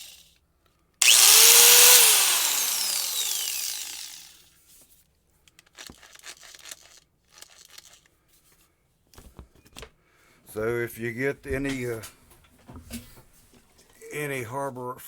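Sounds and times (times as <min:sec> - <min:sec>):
angle grinder whining: 0:01.0 - 0:04.4
faint clicks and handling: 0:04.8 - 0:10.0.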